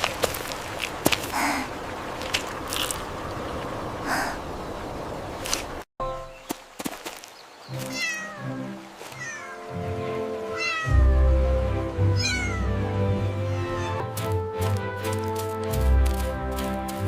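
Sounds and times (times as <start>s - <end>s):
gentle background music: 6.0s - 17.0s
kitten meowing: 7.9s - 8.4s, 9.2s - 9.6s, 10.5s - 11.2s, 12.2s - 12.7s.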